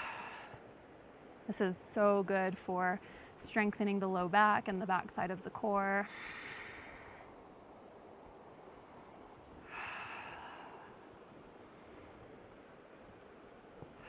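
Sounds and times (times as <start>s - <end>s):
person breathing: 0.0s - 0.6s, 6.1s - 7.4s, 9.7s - 11.1s
faint steady hiss: 0.0s - 14.0s.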